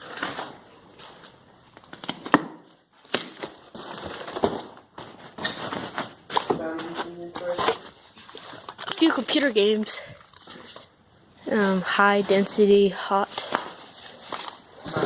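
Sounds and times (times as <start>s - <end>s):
objects scuffing and rustling: 3.4s - 9.2s, 13.3s - 15.0s.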